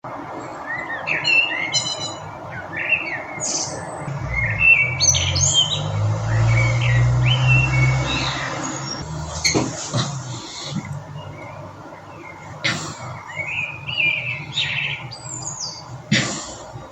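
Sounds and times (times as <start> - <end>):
birds chirping and singing: 0.3 - 16.6
low steady rumble: 4.1 - 9.5.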